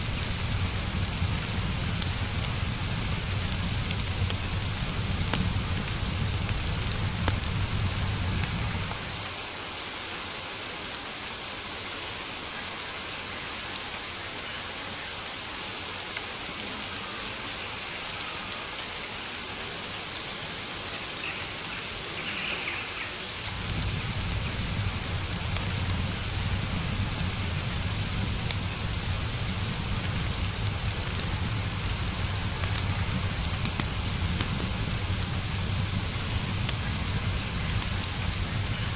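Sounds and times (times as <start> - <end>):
low rumble: 0.0 - 9.1, 23.5 - 38.9
rain hissing: 0.0 - 38.9.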